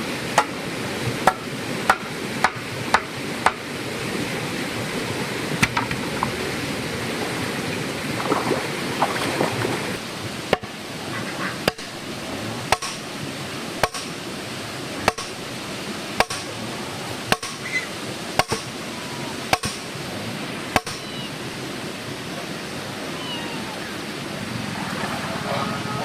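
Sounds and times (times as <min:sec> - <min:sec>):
outdoor noise: 0:00.0 - 0:26.0
hand tool striking: 0:01.3 - 0:03.7, 0:05.6 - 0:06.1, 0:11.7 - 0:11.9.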